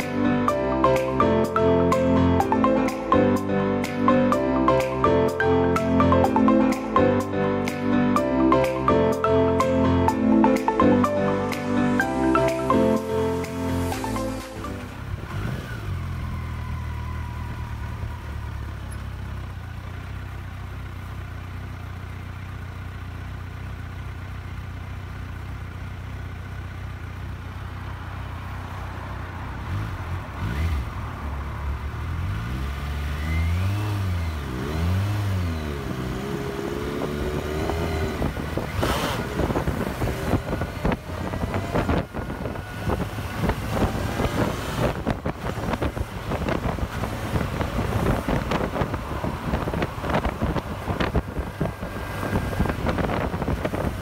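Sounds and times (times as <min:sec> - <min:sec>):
motorcycle engine revving: 0:14.9 - 0:27.9, 0:29.5 - 0:54.0
wind buffeting on microphone: 0:38.2 - 0:54.0.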